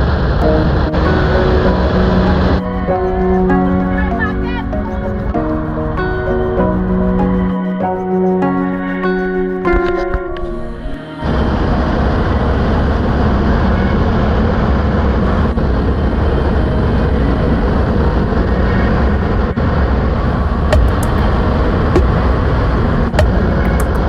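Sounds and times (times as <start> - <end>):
sharp clicks: 23.1 - 24.0.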